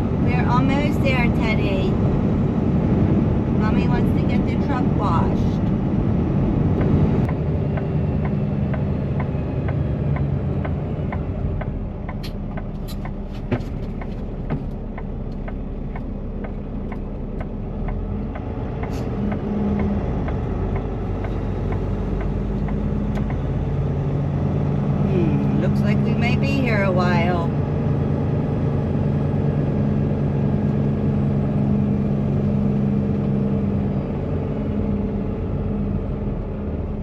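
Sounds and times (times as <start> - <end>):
diesel truck engine idling: 0.0 - 37.0
light regular ticking: 6.8 - 24.1.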